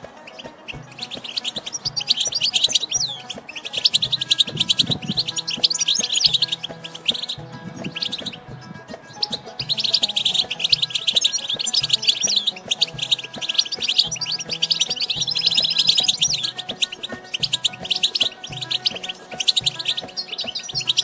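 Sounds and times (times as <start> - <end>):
goldfinch twittering song: 0.0 - 21.0.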